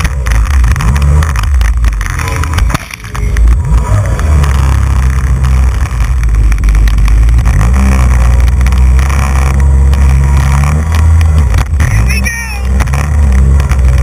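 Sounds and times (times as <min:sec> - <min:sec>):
jet ski engine running: 0:00.0 - 0:14.0.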